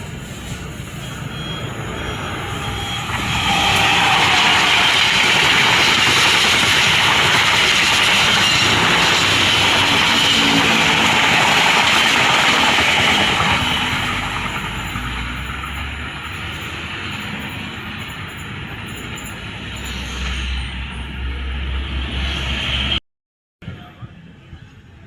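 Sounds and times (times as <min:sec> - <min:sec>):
train passing: 0:00.0 - 0:23.0.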